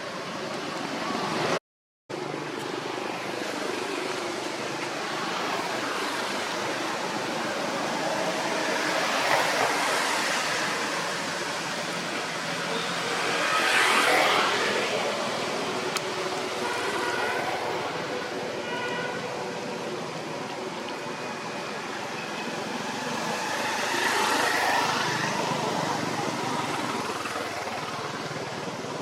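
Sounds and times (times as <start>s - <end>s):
road traffic passing: 0.0s - 29.0s.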